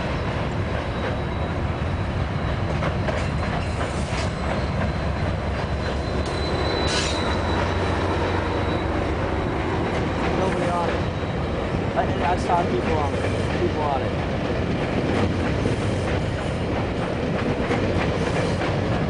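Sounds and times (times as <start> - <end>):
train wheels rumbling on rail: 0.0 - 19.0
high wheel squeal: 0.8 - 13.5.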